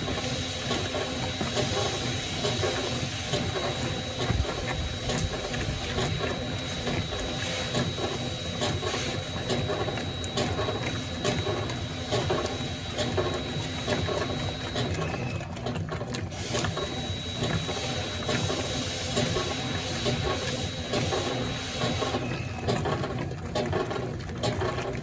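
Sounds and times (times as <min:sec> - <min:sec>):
water sloshing: 0:00.0 - 0:16.8
washing machine churning: 0:00.0 - 0:25.0.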